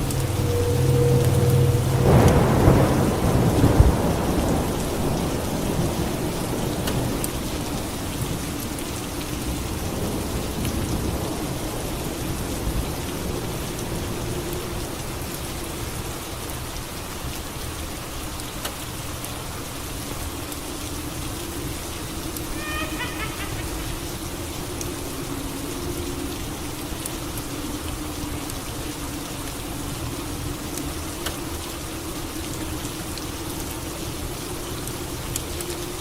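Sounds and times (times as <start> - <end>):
thunder rumbling: 0.0 - 7.4
steady rain falling: 0.0 - 36.0.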